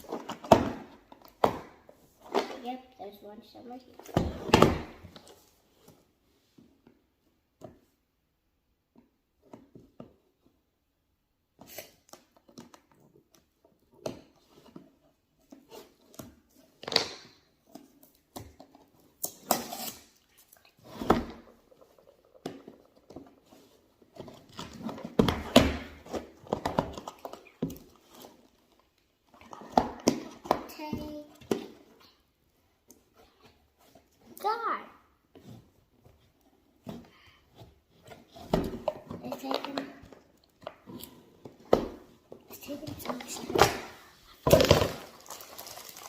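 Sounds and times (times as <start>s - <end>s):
packaging rustling: 44.4s - 46.0s.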